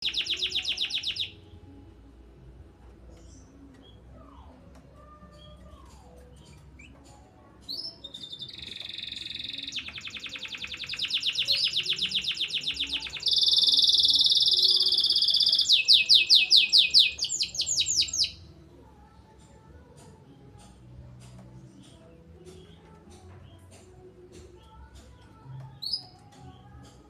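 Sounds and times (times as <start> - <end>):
canary singing trills: 0.0 - 1.6, 3.0 - 18.6, 24.5 - 27.0.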